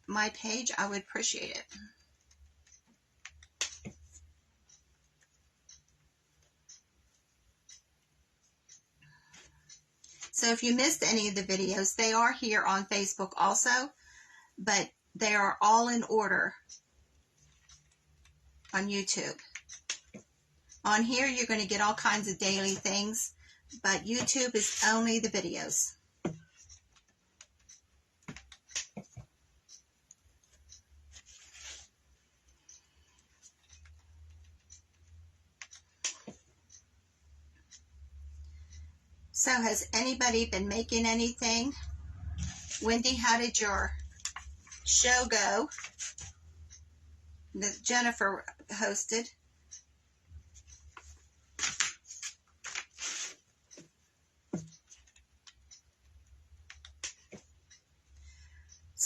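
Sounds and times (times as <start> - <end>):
rustling and scraping: 24.2 - 25.0, 30.5 - 32.0, 42.3 - 43.0, 45.7 - 46.4, 50.6 - 53.9.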